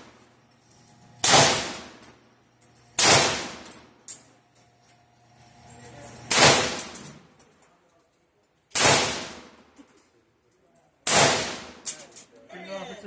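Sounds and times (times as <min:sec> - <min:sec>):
gunshots: 0:01.2 - 0:02.0, 0:03.0 - 0:03.7, 0:06.3 - 0:07.0, 0:08.7 - 0:09.6, 0:11.0 - 0:11.9.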